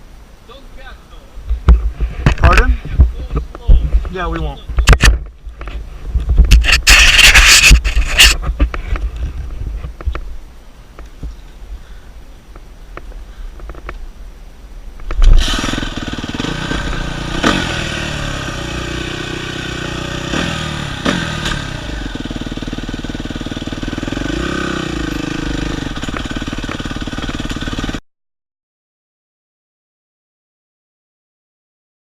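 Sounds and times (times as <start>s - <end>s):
dirt bike engine running: 6.2s - 9.4s, 15.2s - 28.0s.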